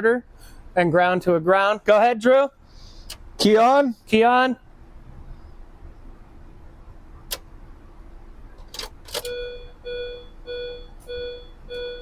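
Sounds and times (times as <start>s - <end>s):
ignition key clicks: 8.7s - 9.4s
electronic warning chime beeping: 9.3s - 12.0s.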